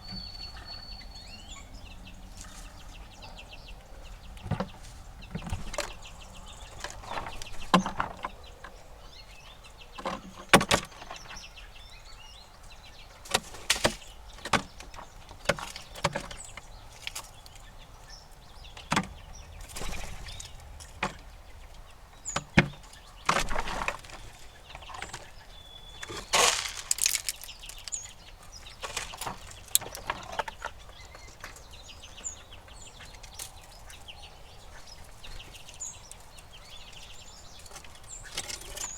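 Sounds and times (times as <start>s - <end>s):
faint bird chirps: 0.0s - 4.6s
squirrels cracking and knocking: 4.3s - 8.9s, 9.8s - 11.6s, 13.2s - 34.4s, 35.0s - 38.9s.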